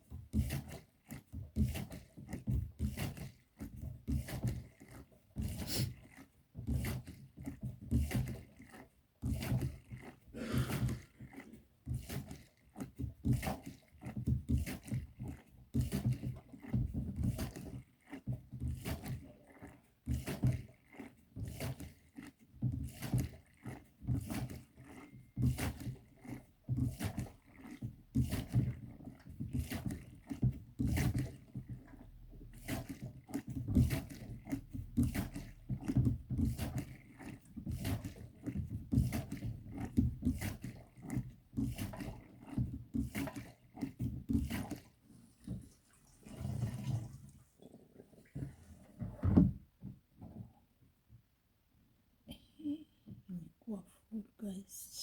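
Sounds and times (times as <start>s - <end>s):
hand siphon pump strokes: 0.0s - 50.5s.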